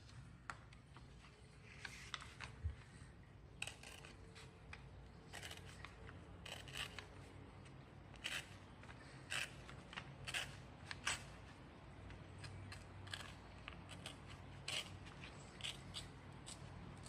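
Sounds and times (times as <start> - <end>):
paper rustling and crinkling: 0.7 - 3.2.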